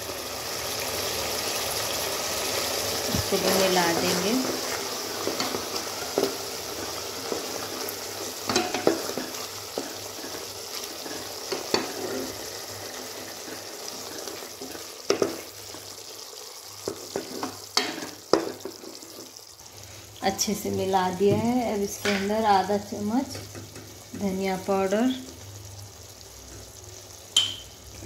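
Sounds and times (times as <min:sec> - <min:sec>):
meat sizzling in hot oil: 0:00.0 - 0:28.0
spatula scraping and tapping pot: 0:03.1 - 0:07.7, 0:08.4 - 0:12.4, 0:13.2 - 0:15.8, 0:16.8 - 0:19.3.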